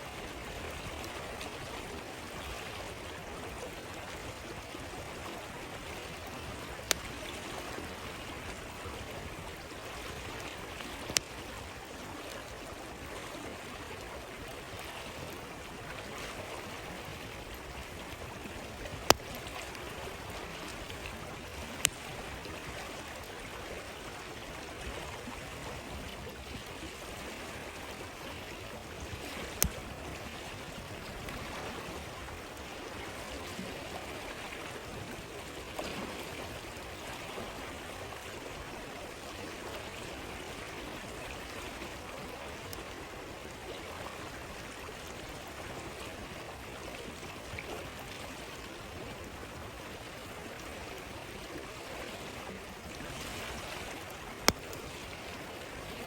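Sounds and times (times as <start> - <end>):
stream flowing: 0.0 - 56.0
campfire pops: 6.6 - 7.4, 18.1 - 22.6, 29.1 - 30.0, 54.4 - 55.1.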